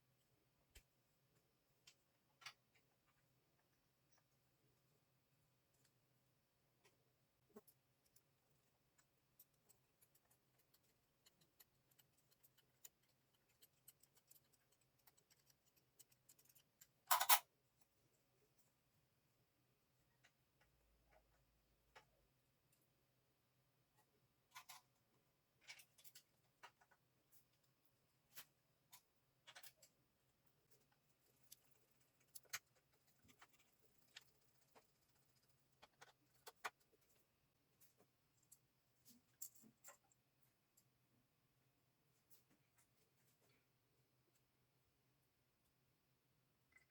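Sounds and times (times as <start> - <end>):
small clicks and taps: 30.8 - 36.9.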